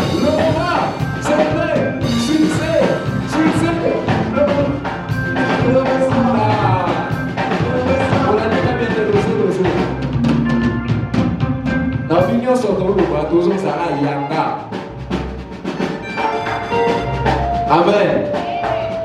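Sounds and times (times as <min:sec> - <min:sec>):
worship band with singing: 0:00.0 - 0:10.2
drums beating: 0:00.0 - 0:19.0.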